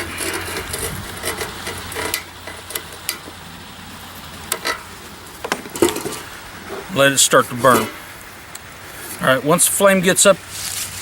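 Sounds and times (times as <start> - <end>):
light clicks and scrapes: 0.0 - 3.4.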